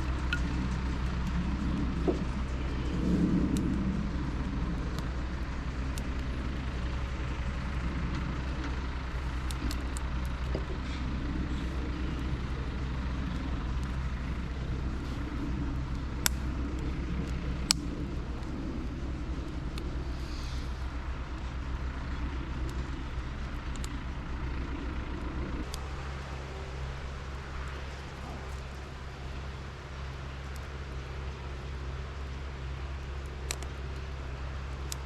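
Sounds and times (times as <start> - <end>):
sharp clicks: 0.0 - 26.0, 33.1 - 35.0
vehicle engine droning: 0.0 - 35.0.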